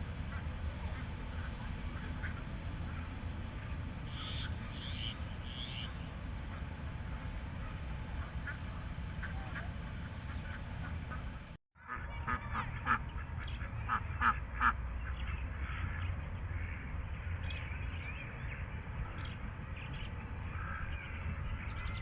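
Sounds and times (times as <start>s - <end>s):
low background noise: 0.0s - 22.0s
ducks quacking: 11.8s - 22.0s
geese honking: 11.8s - 22.0s.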